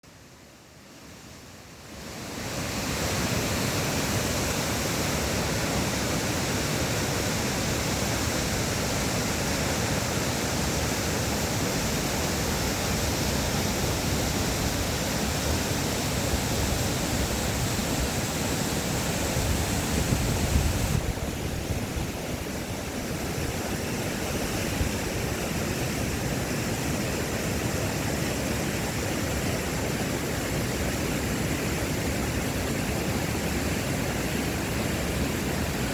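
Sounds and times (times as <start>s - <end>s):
stream rushing over rocks: 0.1s - 35.9s.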